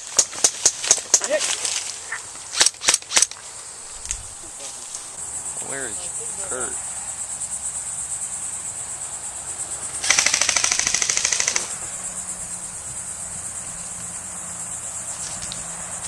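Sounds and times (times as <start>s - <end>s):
insects buzzing: 0.0s - 16.0s
airsoft rifle full-auto burst: 10.0s - 11.8s.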